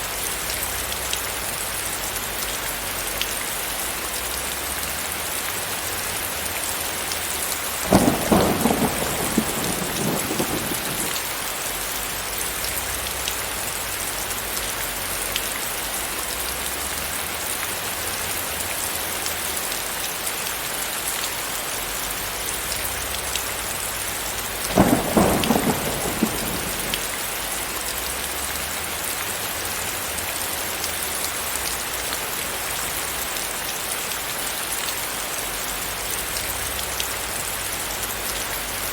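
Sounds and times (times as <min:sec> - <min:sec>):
rain hissing: 0:00.0 - 0:34.2
thunder cracks: 0:07.8 - 0:11.3, 0:24.7 - 0:27.4.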